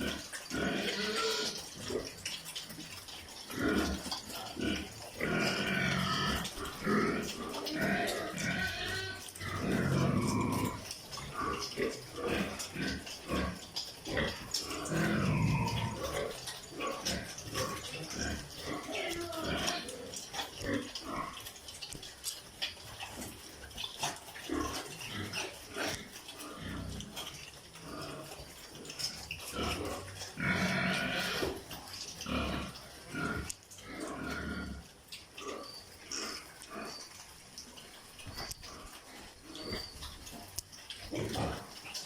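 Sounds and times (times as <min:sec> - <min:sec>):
pig squealing: 0:00.0 - 0:02.8, 0:03.5 - 0:21.6, 0:29.0 - 0:37.3, 0:38.2 - 0:40.5
pigs grunting: 0:00.0 - 0:42.0.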